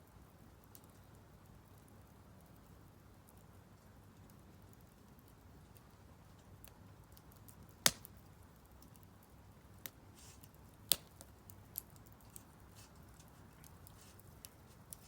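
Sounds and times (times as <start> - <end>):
firewood crackling: 0.5 - 15.0
sharp fire pops: 7.8 - 8.2, 10.9 - 12.0.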